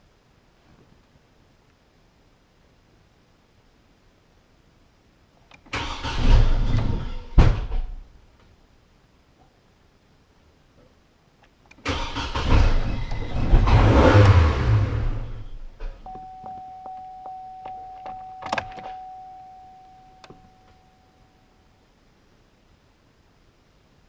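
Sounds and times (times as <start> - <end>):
truck engine cranking and rumbling: 11.9 - 15.9
steady tone with ticking: 16.0 - 21.9.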